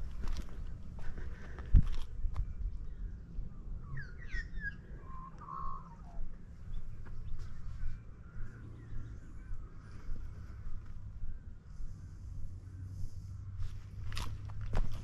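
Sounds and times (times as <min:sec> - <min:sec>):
steady low rumble: 0:00.0 - 0:15.0
bird chirping: 0:02.4 - 0:13.1.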